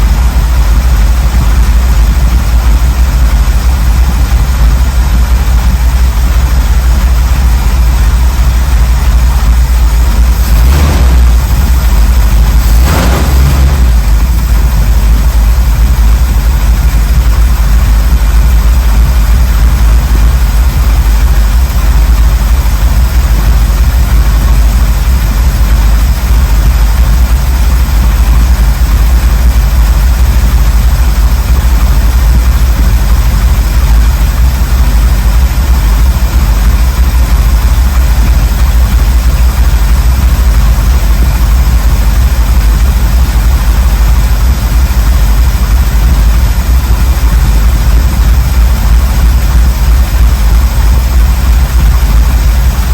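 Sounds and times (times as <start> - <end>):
car engine idling: 0.0 - 52.9.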